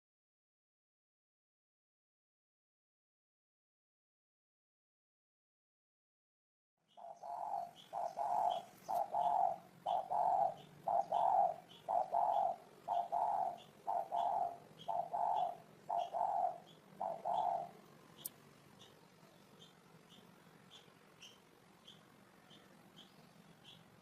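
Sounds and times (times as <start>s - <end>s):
faint high chirp: 6.8s - 24.0s
dove cooing: 6.9s - 18.0s.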